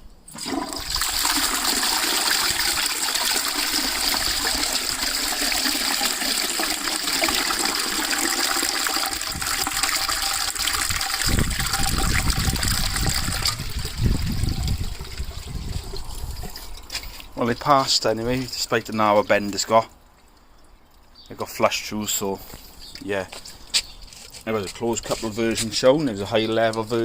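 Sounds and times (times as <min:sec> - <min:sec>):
toilet flushing water rushing: 0:00.3 - 0:16.4
deep gurgling: 0:00.3 - 0:19.5.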